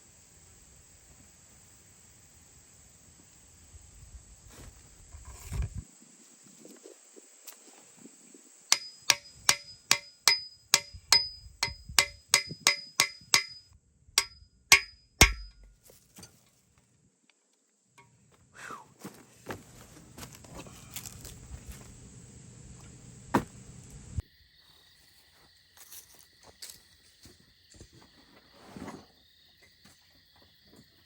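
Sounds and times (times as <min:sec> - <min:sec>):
crickets chirping: 0:00.0 - 0:31.0
hammer striking metal: 0:08.7 - 0:15.8.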